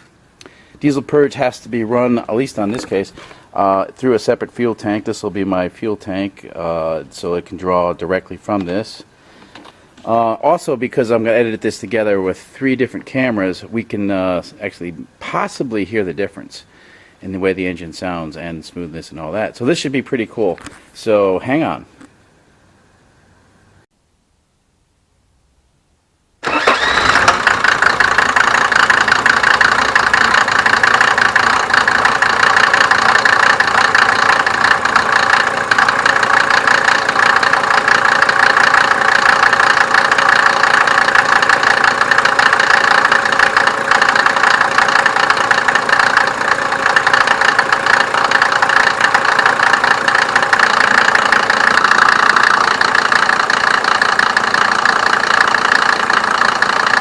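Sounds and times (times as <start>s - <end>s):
diesel engine idling: 26.4s - 57.0s.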